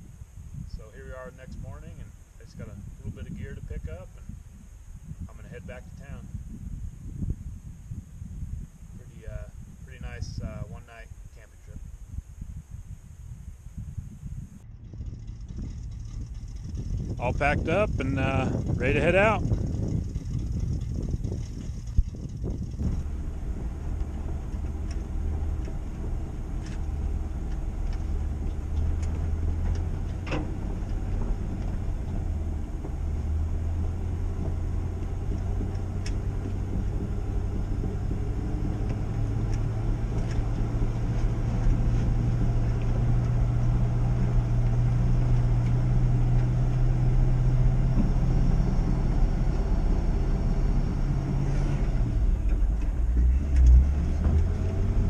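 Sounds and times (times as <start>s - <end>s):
pickup truck engine running: 14.6s - 55.0s.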